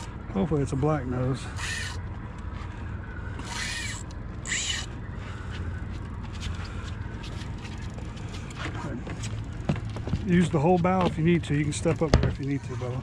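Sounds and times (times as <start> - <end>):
low steady rumble: 0.0 - 13.0
fishing reel buzzing: 1.5 - 2.0, 3.4 - 5.0.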